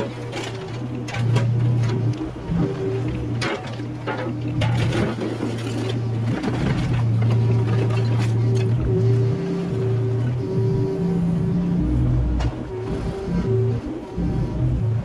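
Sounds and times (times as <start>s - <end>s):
diesel engine running: 0.0s - 15.0s
excavator bucket clanking: 3.1s - 8.8s.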